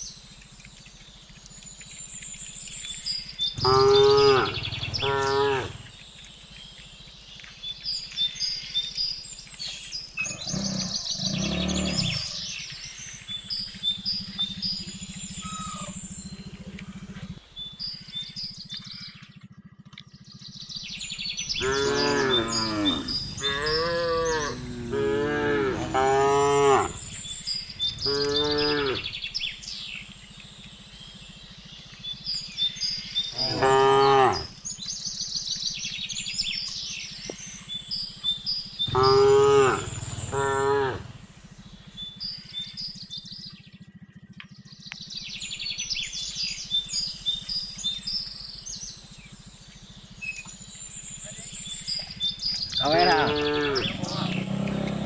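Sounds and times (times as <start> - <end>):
birds chirping: 0.0 - 55.0
cows mooing: 3.6 - 5.9, 10.2 - 12.4, 21.6 - 29.3, 33.3 - 34.6, 38.9 - 41.3, 52.7 - 55.0.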